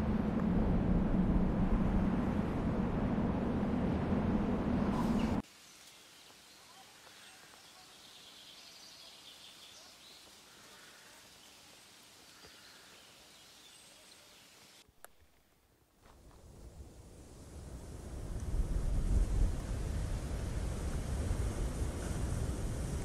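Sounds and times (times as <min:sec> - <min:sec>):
loud rumbling noise: 0:00.0 - 0:05.4
birds chirping: 0:05.0 - 0:14.8.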